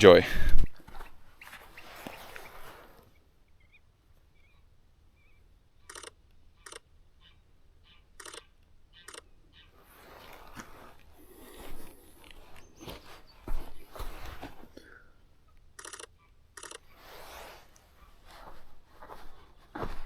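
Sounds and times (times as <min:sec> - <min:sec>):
faint high chirps: 0:01.4 - 0:09.9
camera shutter bursts: 0:05.8 - 0:06.9, 0:08.2 - 0:09.3, 0:15.8 - 0:16.9.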